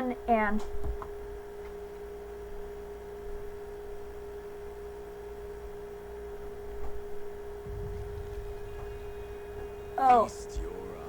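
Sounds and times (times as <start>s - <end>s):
faint low rumble: 7.6s - 11.0s
steady electronic tone: 7.6s - 11.0s.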